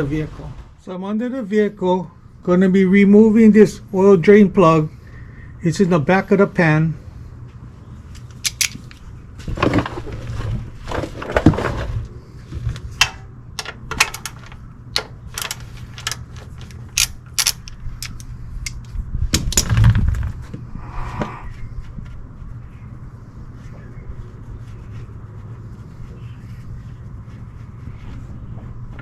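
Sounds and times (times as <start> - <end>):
ratchet clicking: 13.6 - 18.9.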